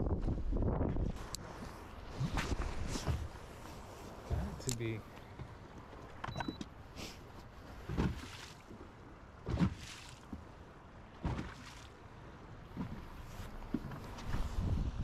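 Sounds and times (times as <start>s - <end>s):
wind buffeting microphone: 0.0s - 4.6s, 12.6s - 15.0s
water slapping boat hull: 0.0s - 15.0s.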